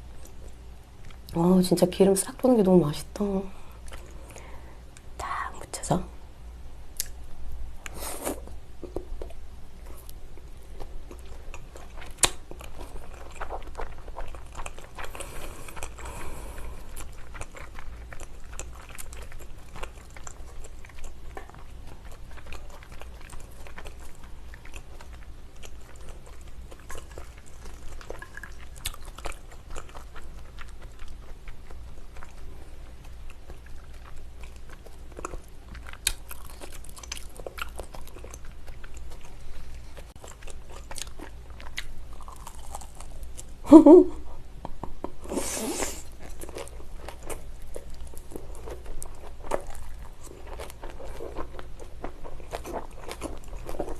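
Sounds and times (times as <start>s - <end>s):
person chewing wet mouth sounds: 7.0s - 7.2s, 7.8s - 43.5s, 44.7s - 53.9s
small mouth clicks: 7.0s - 7.2s.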